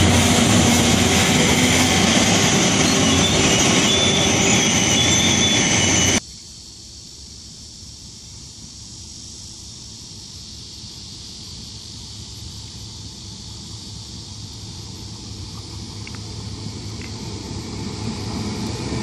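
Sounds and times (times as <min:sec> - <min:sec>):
distant diesel locomotive rumble: 0:00.0 - 0:06.2, 0:11.6 - 0:19.0
train car rolling past: 0:00.0 - 0:06.2
insects chirring: 0:00.3 - 0:18.7.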